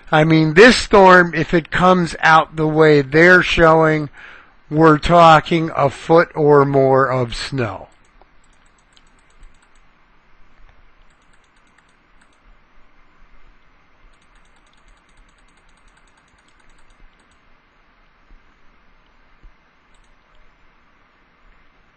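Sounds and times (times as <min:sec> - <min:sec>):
low steady hiss: 0:00.0 - 0:21.9
computer keyboard clicking: 0:07.9 - 0:09.9, 0:11.0 - 0:12.4, 0:14.1 - 0:17.4, 0:19.9 - 0:20.3.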